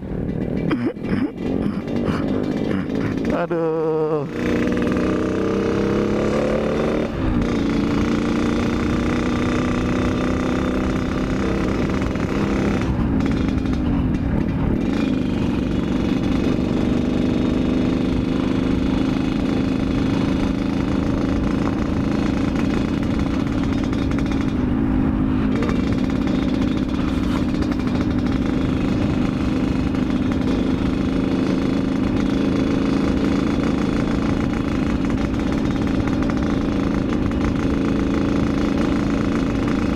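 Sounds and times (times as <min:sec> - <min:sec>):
two-stroke motorcycle engine: 0:00.0 - 0:39.9.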